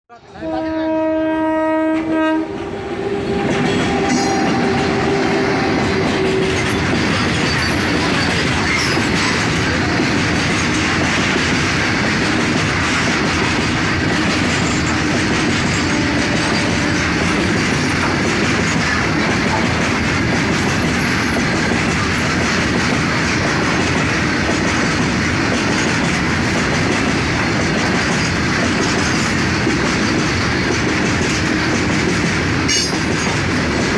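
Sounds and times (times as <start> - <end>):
train running on rails: 0.1 - 33.9
train horn: 0.2 - 6.9, 14.0 - 17.7.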